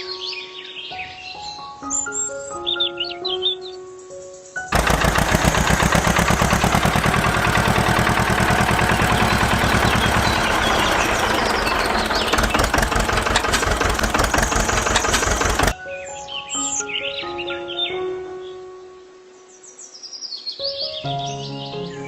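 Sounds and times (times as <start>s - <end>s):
engine chugging: 4.7s - 15.8s.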